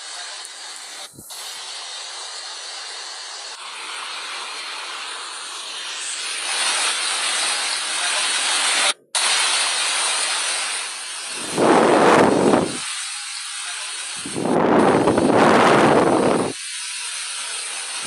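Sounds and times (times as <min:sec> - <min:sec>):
water rushing: 0:11.2 - 0:13.0.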